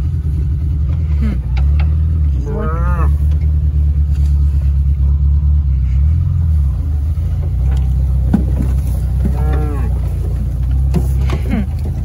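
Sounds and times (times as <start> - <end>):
engine droning at low speed: 0.0 - 12.0.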